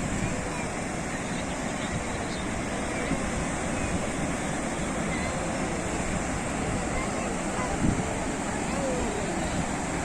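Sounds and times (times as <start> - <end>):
sea surf breaking on shore: 0.0 - 10.0.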